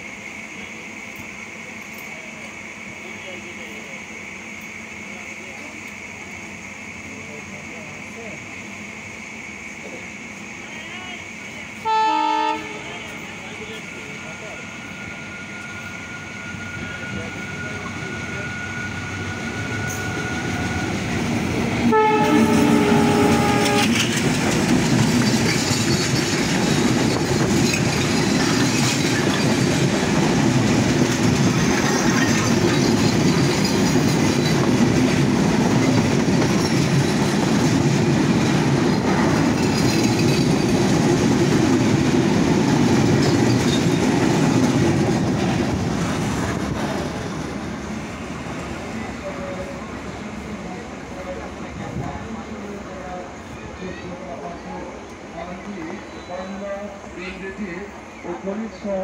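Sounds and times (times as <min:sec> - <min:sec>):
train coaches rumbling past: 0:00.0 - 0:59.0
diesel locomotive horn: 0:11.8 - 0:13.2, 0:21.8 - 0:24.2.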